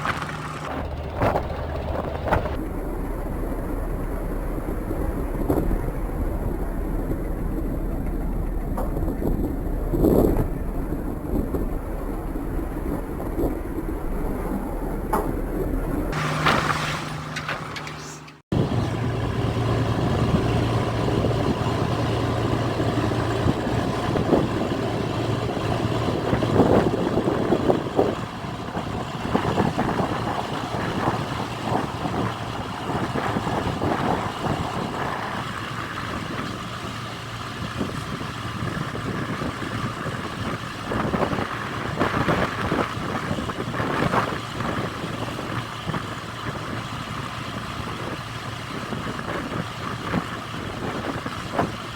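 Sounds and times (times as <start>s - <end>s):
knocks and clatter: 0.0s - 18.4s
engine running: 0.0s - 51.9s.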